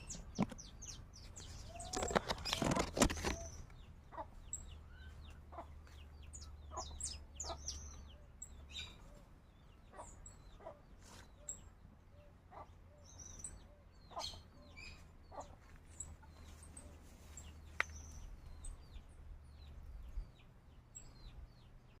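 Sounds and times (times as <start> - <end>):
chickens clucking: 0.0 - 8.0, 13.5 - 17.9
birds chirping: 0.0 - 22.0.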